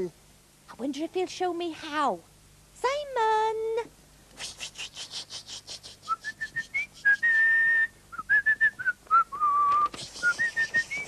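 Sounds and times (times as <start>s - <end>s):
man whistling a tune: 6.1s - 11.0s
rapid airy hissing strokes: 9.9s - 11.0s.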